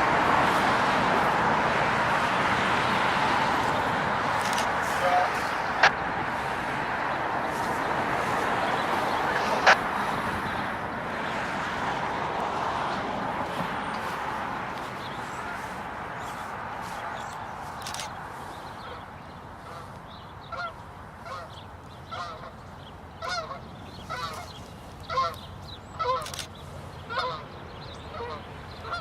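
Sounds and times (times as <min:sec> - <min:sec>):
geese honking: 0:00.0 - 0:10.7, 0:18.8 - 0:22.6, 0:23.2 - 0:26.3, 0:27.1 - 0:29.0
rushing noise: 0:00.0 - 0:18.5.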